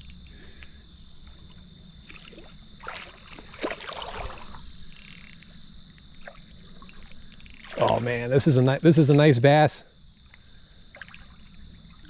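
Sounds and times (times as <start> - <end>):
creek water sloshing and splashing: 2.0 - 4.7, 7.6 - 8.3, 10.2 - 12.0.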